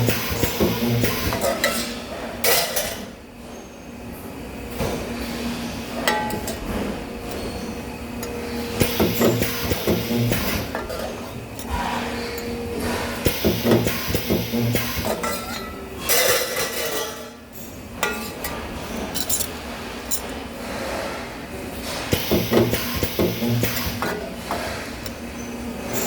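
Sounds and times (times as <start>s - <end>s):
metal parts clanking: 18.0s - 20.4s.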